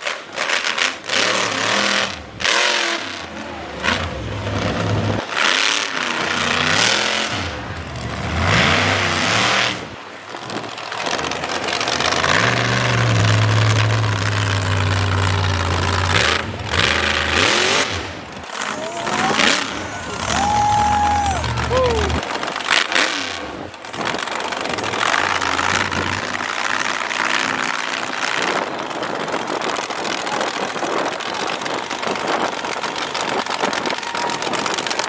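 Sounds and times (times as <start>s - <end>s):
truck engine revving hard: 0.6s - 10.0s, 10.6s - 22.2s, 23.0s - 27.9s.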